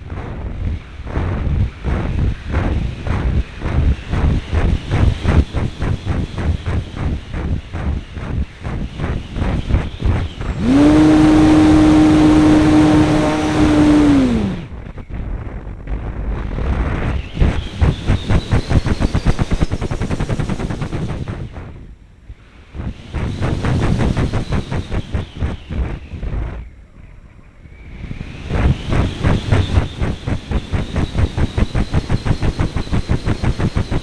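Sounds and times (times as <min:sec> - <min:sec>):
airflow fluttering over microphone: 0:00.0 - 0:27.0, 0:27.6 - 0:34.0
faint rising whine: 0:00.0 - 0:34.0
model airplane motor droning: 0:04.5 - 0:14.8.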